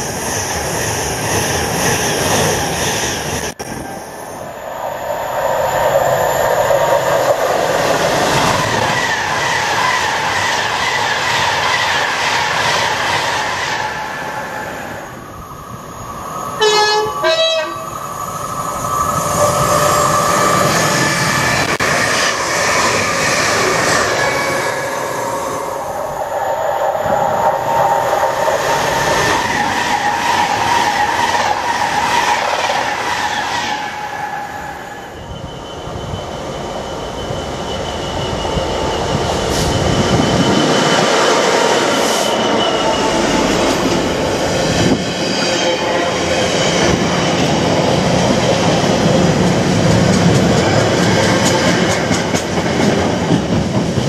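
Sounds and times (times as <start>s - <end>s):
trains passing at speed: 0.0s - 54.0s
two-tone train horn: 16.6s - 18.0s.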